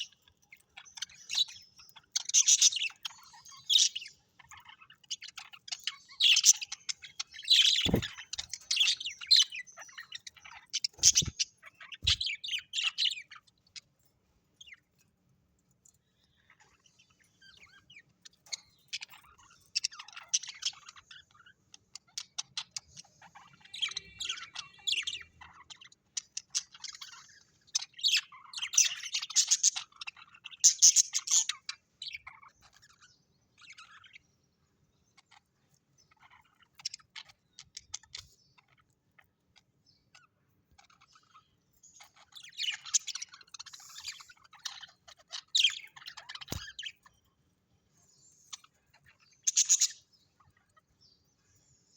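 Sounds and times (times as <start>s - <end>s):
birds chirping: 0.0s - 51.9s.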